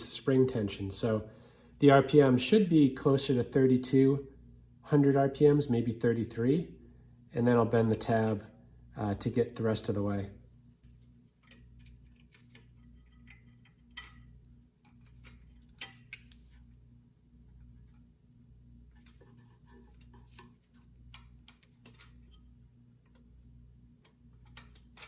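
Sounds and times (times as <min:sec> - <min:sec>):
small metallic clicks and taps: 0:11.4 - 0:16.5.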